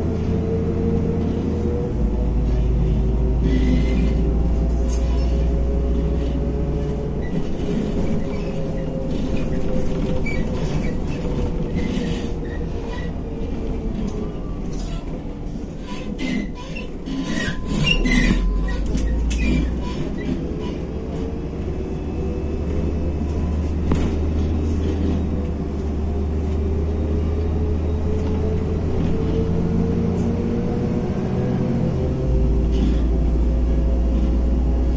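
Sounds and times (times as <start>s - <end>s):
bus engine and road drone: 0.0s - 34.9s
body rattling and squeaking: 1.3s - 25.6s
drivetrain whine: 16.9s - 34.9s.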